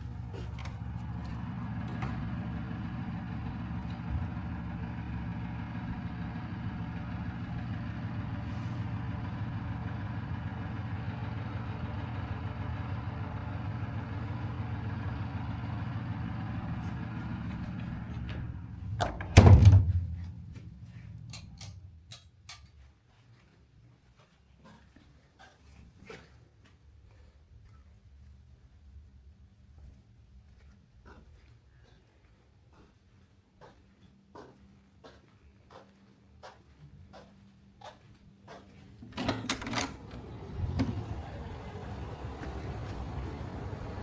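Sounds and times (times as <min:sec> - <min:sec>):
low mechanical hum: 0:00.0 - 0:22.6, 0:38.9 - 0:44.0
loud thump: 0:18.0 - 0:22.0.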